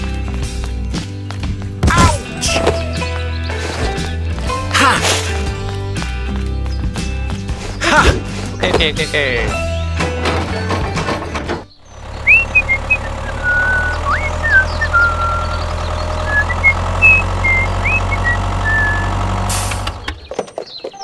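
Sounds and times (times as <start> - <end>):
tractor engine idling: 10.6 - 20.2
bird-like chirps and whistles: 12.2 - 19.2.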